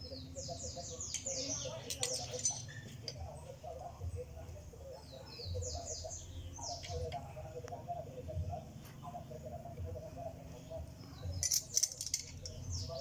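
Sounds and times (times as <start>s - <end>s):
bird chirping: 0.0s - 13.0s
steady low hum: 2.7s - 13.0s.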